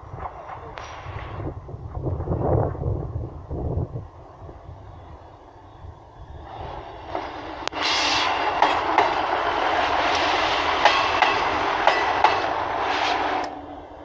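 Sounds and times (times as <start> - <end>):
train wheel and rail rush: 0.0 - 14.0
wheels clicking over rail joints: 5.0 - 13.7.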